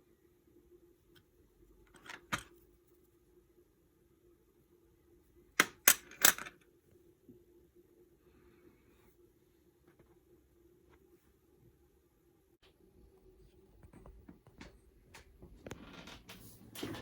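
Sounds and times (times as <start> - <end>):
faint steady hum: 0.0 - 17.0
metal parts clinking: 5.6 - 6.5.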